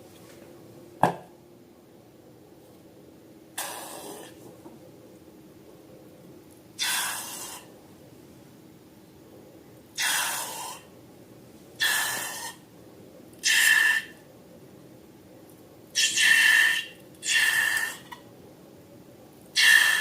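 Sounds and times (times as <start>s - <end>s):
short hissing bursts: 3.6s - 4.3s.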